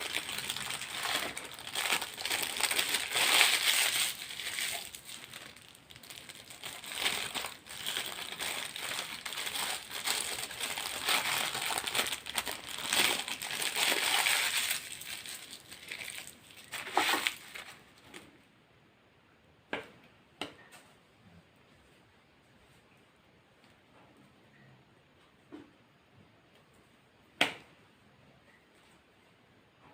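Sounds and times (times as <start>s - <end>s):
food packaging crinkling: 0.0s - 18.1s.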